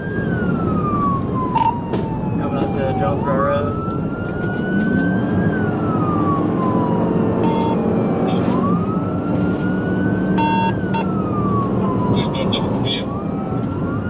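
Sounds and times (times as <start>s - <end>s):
engine and road rumble: 0.0s - 14.0s
police siren wailing: 0.0s - 14.0s
short electronic beeps: 7.4s - 7.8s, 10.4s - 11.0s.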